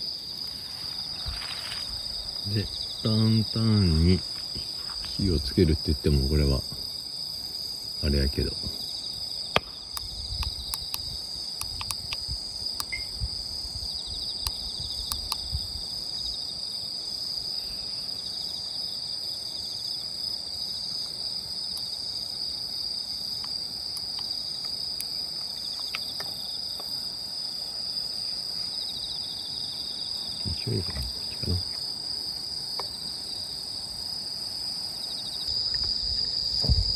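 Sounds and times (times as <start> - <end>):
crickets and night insects trilling: 0.0 - 36.9
sharp clicks: 9.6 - 12.2, 14.4 - 15.5.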